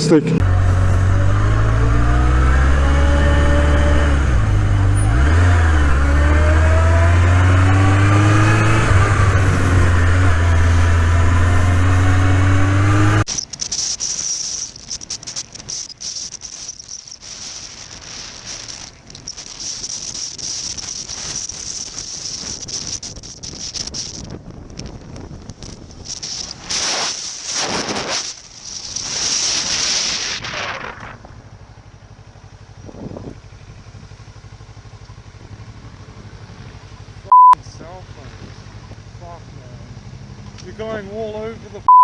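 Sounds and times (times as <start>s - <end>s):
motorcycle engine running: 0.0s - 41.8s
wind rushing over microphone: 17.8s - 31.2s, 32.8s - 33.4s.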